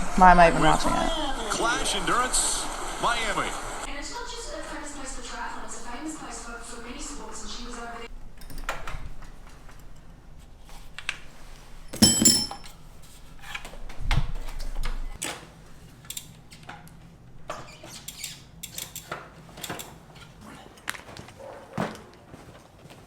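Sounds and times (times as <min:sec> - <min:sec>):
ringing clink: 0:11.9 - 0:12.7
objects clicking and clattering: 0:11.9 - 0:12.8.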